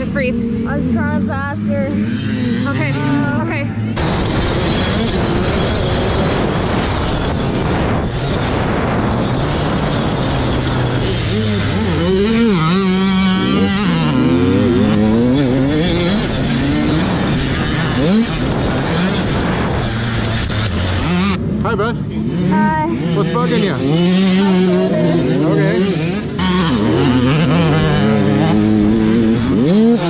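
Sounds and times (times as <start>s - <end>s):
dirt bike engines revving: 0.0s - 30.0s.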